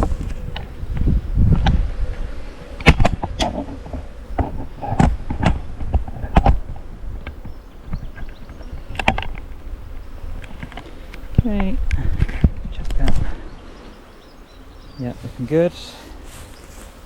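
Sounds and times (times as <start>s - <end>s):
honey bees buzzing: 0.0s - 17.0s
hive frames knocking and clicking: 2.8s - 13.3s.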